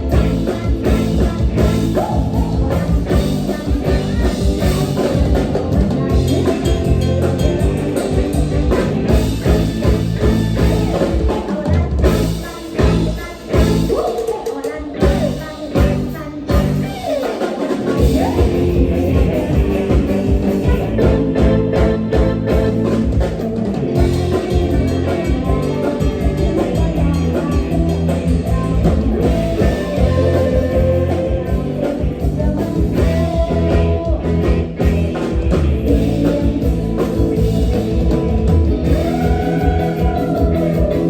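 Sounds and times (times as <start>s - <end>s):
bass: 0.0s - 14.1s, 14.9s - 17.2s, 17.8s - 41.0s
drum kit beat: 0.0s - 41.0s
electric guitar: 0.0s - 41.0s
live band playing upbeat music: 0.0s - 41.0s.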